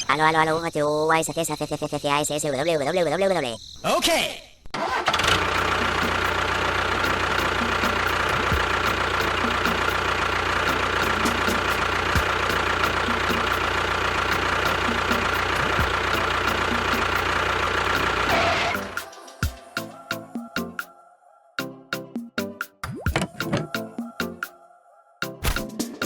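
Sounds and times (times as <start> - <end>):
small tractor motor running: 4.8 - 19.0.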